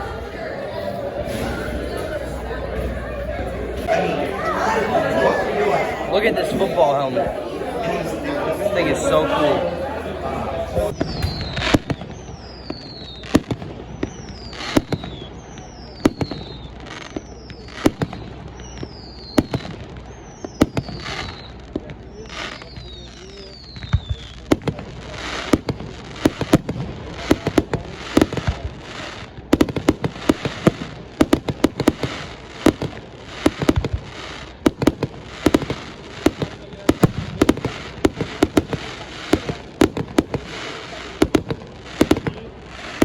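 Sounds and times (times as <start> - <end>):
steady background noise: 0.0 - 17.5
fireworks bangs and crackling pops: 10.7 - 43.0.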